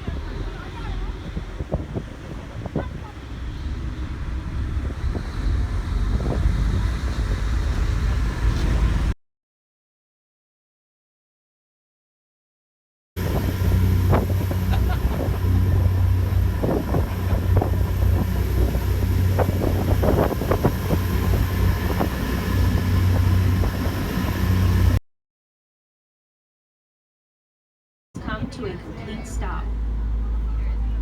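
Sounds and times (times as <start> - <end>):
ferry engines rumbling: 0.0 - 9.2, 13.2 - 25.0, 28.2 - 31.0
wind on microphone: 0.0 - 9.2, 13.2 - 25.0.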